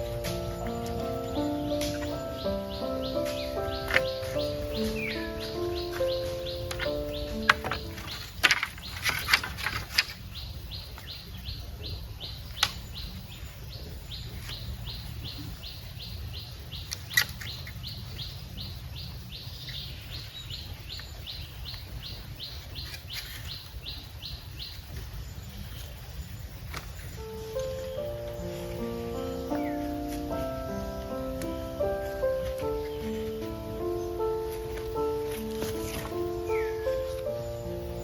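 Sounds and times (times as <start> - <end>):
high chirp repeating: 0.0 - 8.1.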